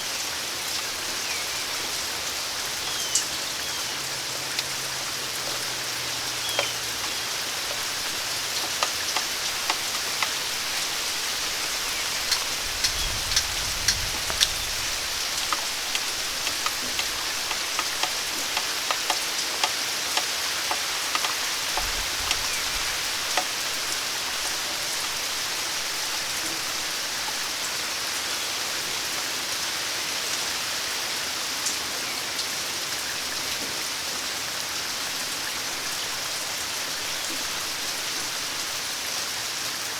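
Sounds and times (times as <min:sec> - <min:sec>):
steady rain falling: 0:00.0 - 0:39.9
sharp drips landing close: 0:02.5 - 0:25.1.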